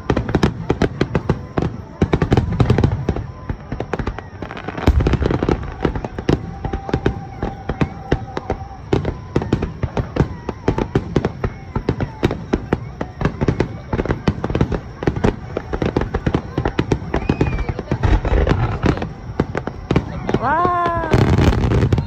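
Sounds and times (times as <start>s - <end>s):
fireworks bursting and crackling: 0.0s - 22.0s
deep firework boom: 13.2s - 22.0s.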